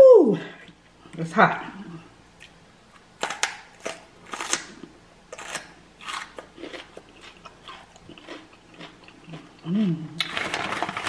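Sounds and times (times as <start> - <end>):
crisp crunching bites: 3.2 - 9.4.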